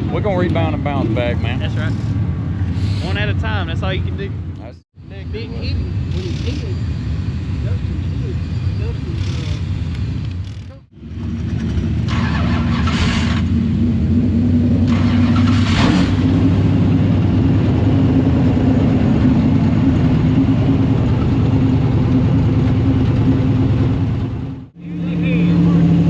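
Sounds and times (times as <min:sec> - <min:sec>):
race car engine running loudly: 0:11.0 - 0:26.0.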